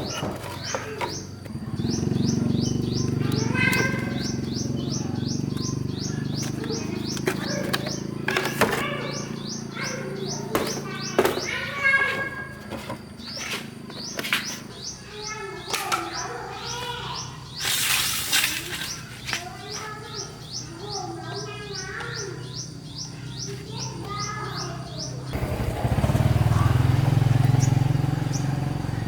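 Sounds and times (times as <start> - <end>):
small bird chirping: 0.0 - 29.0.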